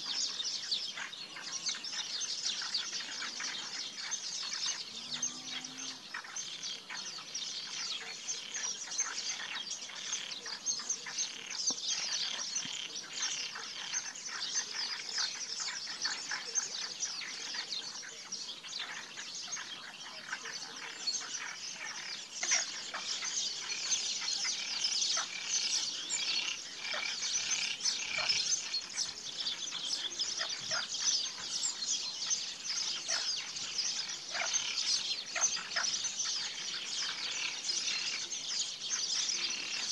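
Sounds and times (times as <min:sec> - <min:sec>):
birds chirping and chattering: 0:00.0 - 0:39.9.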